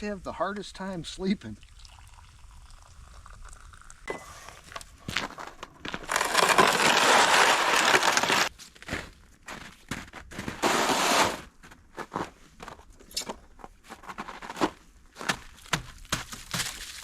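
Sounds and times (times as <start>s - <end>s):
rustling crunching handling noise: 4.5s - 9.7s.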